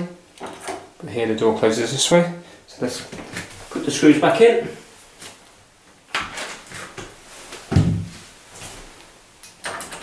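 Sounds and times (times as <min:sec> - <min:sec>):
dull thump: 0:07.7 - 0:08.2.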